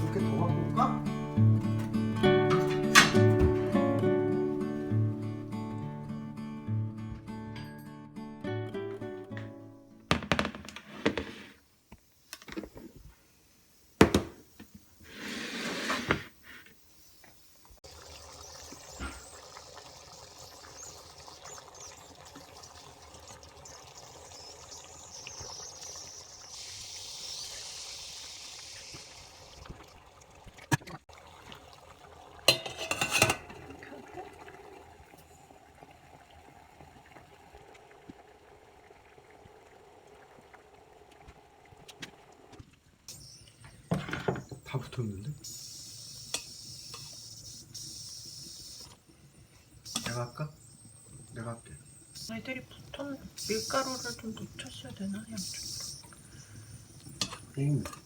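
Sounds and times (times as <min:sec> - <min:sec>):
steady hiss: 0:09.0 - 0:29.9, 0:43.1 - 0:58.0
pots and dishes clinking: 0:32.4 - 0:34.0, 0:57.1 - 0:58.0
dishes clattering: 0:32.5 - 0:33.9.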